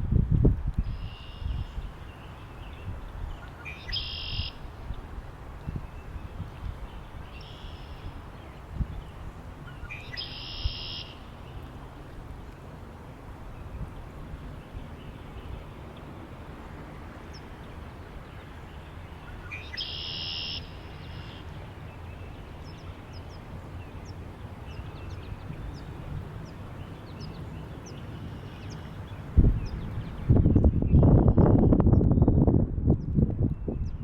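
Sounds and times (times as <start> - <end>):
wind blowing: 0.0 - 34.0
small birds chirping: 13.6 - 32.4.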